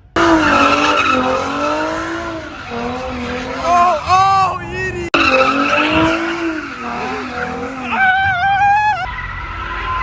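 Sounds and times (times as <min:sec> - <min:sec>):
engine revving: 0:00.0 - 0:08.6
car tyres squealing: 0:00.0 - 0:09.2.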